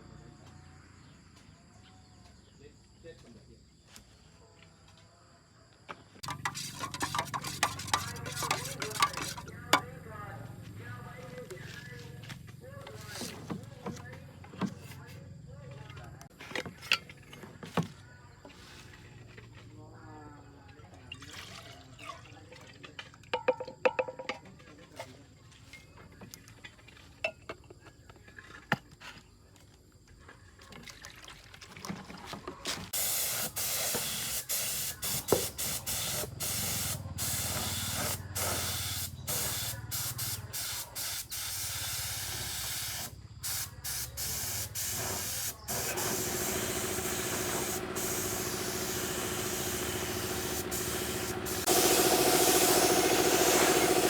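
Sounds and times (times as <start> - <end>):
spray gun hissing: 33.0 - 54.0
steady hum: 45.7 - 54.0.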